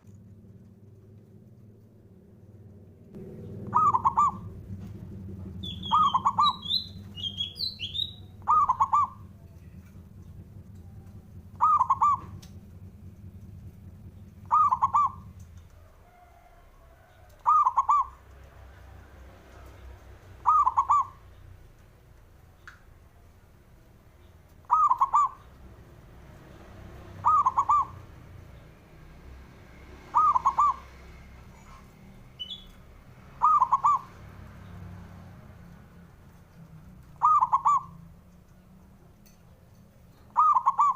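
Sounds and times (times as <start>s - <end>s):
dove cooing: 3.2s - 13.5s, 14.1s - 18.4s, 20.4s - 21.2s, 24.6s - 25.6s, 27.0s - 28.2s, 30.0s - 32.6s, 33.3s - 34.2s, 37.0s - 38.2s, 40.2s - 40.9s.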